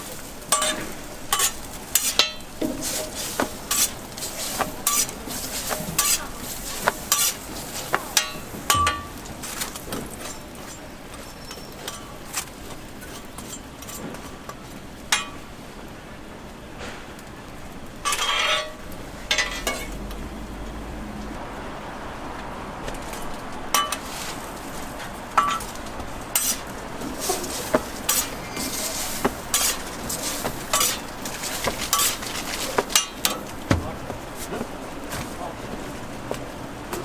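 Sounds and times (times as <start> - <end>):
metal spatula scraping on griddle: 0.0 - 14.4, 18.0 - 20.0, 23.8 - 33.5.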